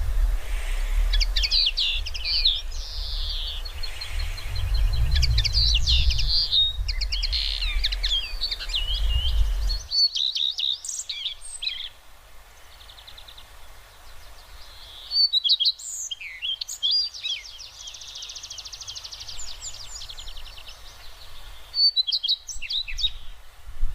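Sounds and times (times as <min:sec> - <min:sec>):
low rumble: 0:00.0 - 0:09.9
small birds chirping: 0:00.0 - 0:23.5
bird trill: 0:00.8 - 0:11.9, 0:21.7 - 0:23.2.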